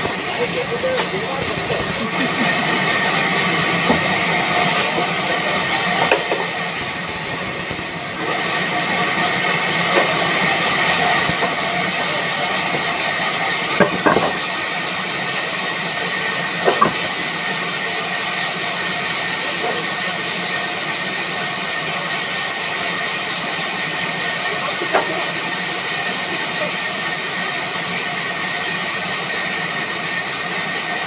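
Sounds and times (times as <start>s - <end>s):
sawmill machinery hissing: 0.0s - 31.0s.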